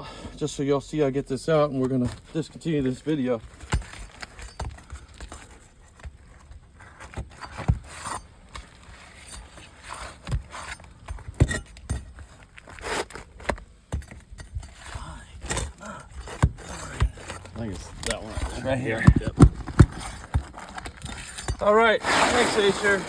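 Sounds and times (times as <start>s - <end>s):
bar scraping shingle: 1.5s - 23.0s.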